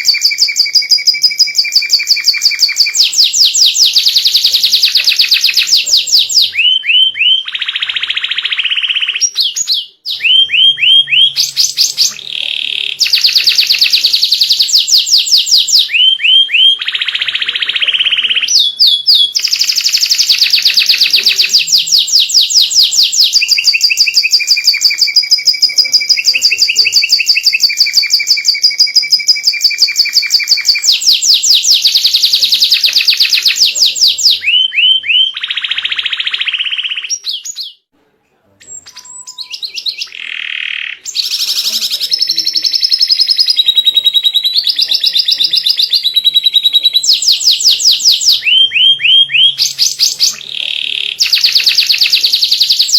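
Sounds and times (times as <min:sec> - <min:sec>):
canary singing trills: 0:00.0 - 0:37.9, 0:38.6 - 0:52.9.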